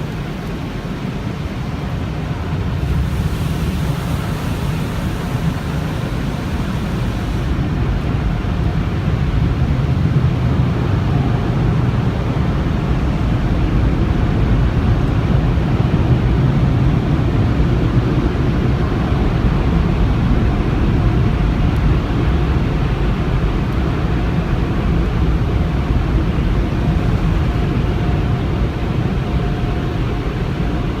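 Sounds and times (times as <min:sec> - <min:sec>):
car wash equipment rumbling: 0:00.0 - 0:31.0
faint hum: 0:02.0 - 0:07.7.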